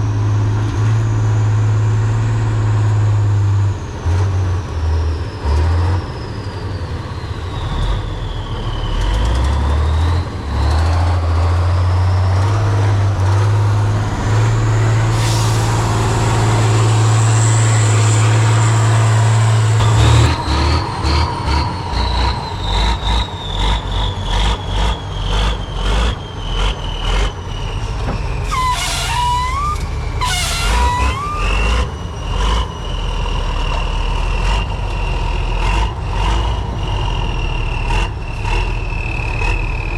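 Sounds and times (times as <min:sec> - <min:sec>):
diesel truck engine whining: 0:00.0 - 0:39.9
short squeals: 0:14.2 - 0:22.8, 0:27.6 - 0:32.5.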